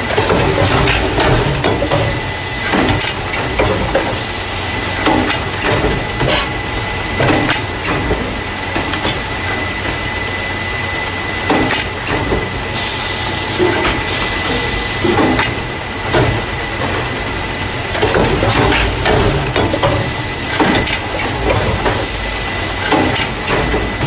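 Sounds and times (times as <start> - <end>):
machine low hum: 0.0 - 24.0
mechanism knocks and clatter: 17.9 - 22.0.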